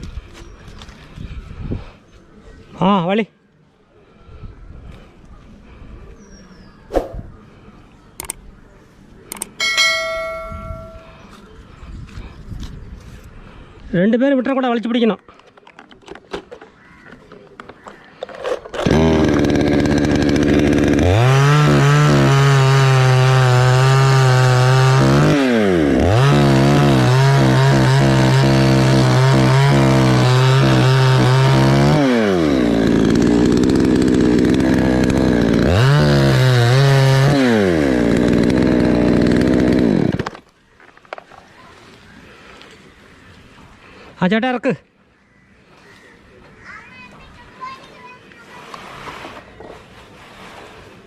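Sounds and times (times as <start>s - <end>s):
chainsaw cutting into tree: 18.8s - 40.4s.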